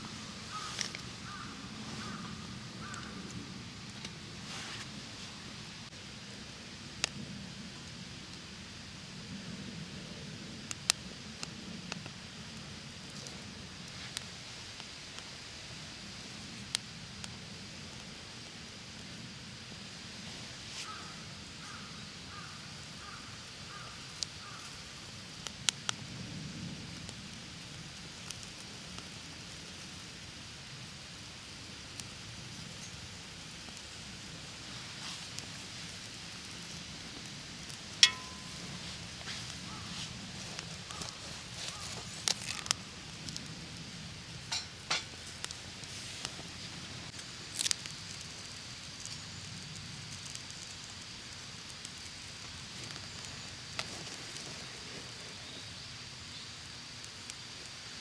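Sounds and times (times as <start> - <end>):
fire crackling clicks: 0.0 - 6.1, 6.9 - 9.7, 10.6 - 58.0
campfire burning: 0.0 - 58.0
outdoor hiss: 0.0 - 58.0
crow cawing: 0.5 - 3.2, 20.8 - 24.6.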